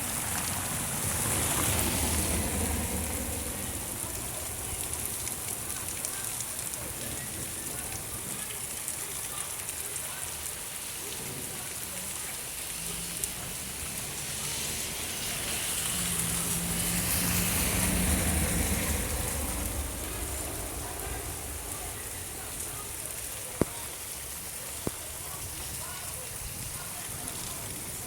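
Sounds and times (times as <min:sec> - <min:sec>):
steady rain falling: 0:00.0 - 0:28.0
vehicle passing: 0:00.2 - 0:04.8, 0:12.6 - 0:22.9.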